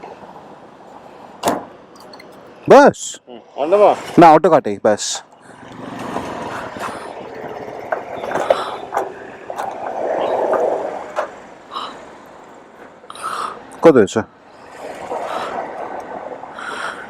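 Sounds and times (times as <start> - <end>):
traffic noise: 0.0 - 17.0
vehicle passing: 5.4 - 13.7, 14.3 - 17.0.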